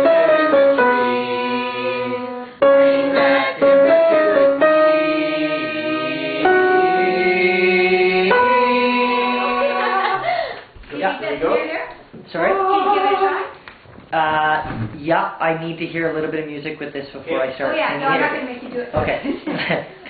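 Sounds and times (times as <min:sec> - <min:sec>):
keyboard long held notes: 0:00.0 - 0:10.2
voices singing along: 0:00.0 - 0:10.4, 0:12.3 - 0:13.6.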